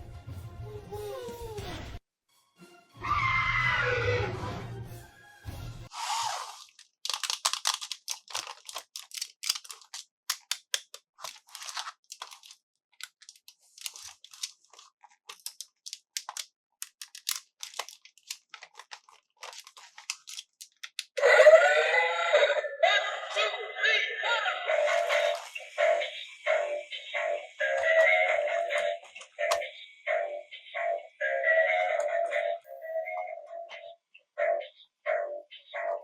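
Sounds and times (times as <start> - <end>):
packaging crackling and tearing: 6.5 - 21.2.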